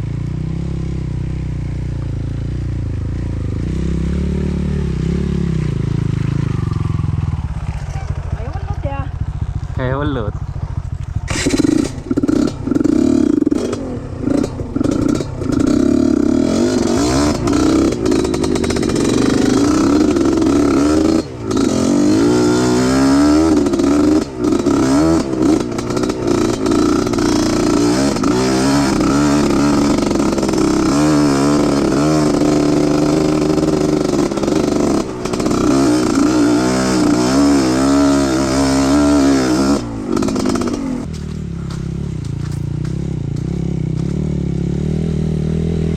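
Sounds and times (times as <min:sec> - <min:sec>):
motorcycle engine revving: 0:00.0 - 0:45.9
clatter: 0:10.5 - 0:38.3, 0:39.0 - 0:44.6.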